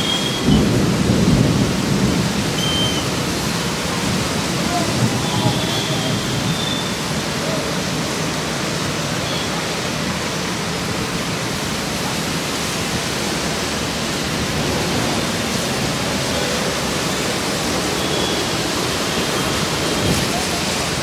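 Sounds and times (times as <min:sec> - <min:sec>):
heavy rain on wet road: 0:00.0 - 0:21.0
traffic driving on wet road: 0:00.0 - 0:21.0.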